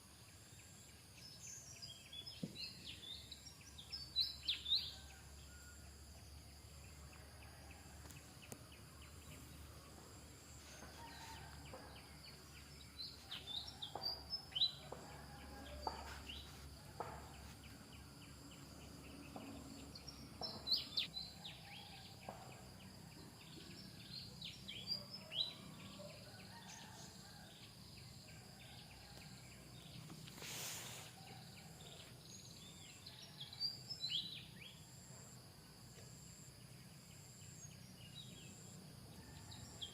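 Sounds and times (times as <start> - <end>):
background hiss: 0.0 - 21.9, 25.6 - 39.9.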